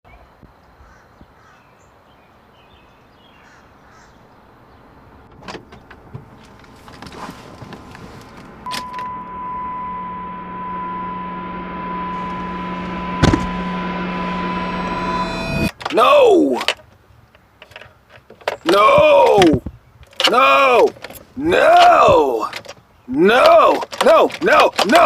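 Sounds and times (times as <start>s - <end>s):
low hum: 6.0s - 15.7s
steady high tone: 8.6s - 15.7s
sharp thump: 12.1s - 14.5s
clicks of keys and door parts: 17.6s - 22.8s, 23.4s - 25.0s.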